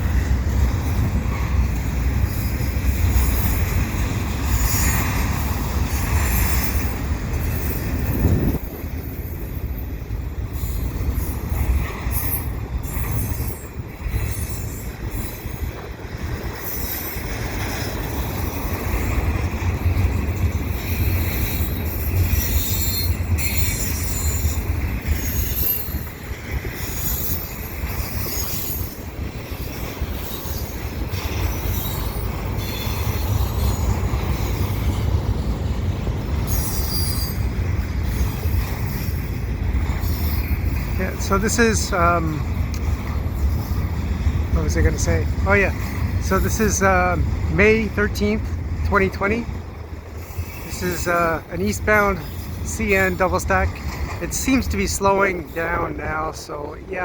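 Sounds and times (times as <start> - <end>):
train wheels rumbling on rail: 0.0 - 57.0
high wheel squeal: 4.4 - 19.3, 19.9 - 35.1, 36.3 - 42.0, 50.1 - 56.6.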